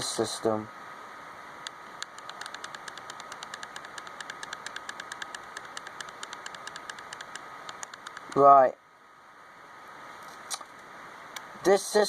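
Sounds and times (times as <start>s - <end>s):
faint high hum: 0.0s - 12.0s
microphone hiss: 0.0s - 12.0s
rapid computer clicks: 1.6s - 8.4s.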